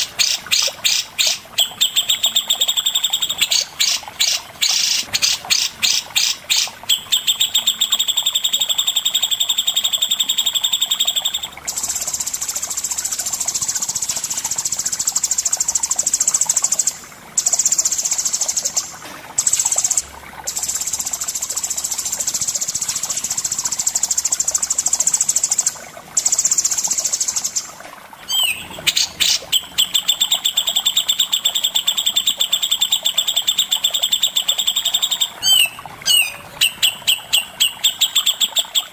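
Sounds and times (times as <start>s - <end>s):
songbird trilling: 28.3s - 38.9s.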